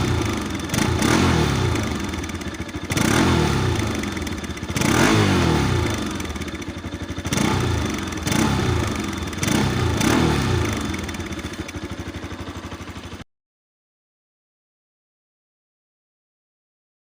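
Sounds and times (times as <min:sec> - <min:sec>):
motorcycle engine revving and idling: 0:00.0 - 0:13.2.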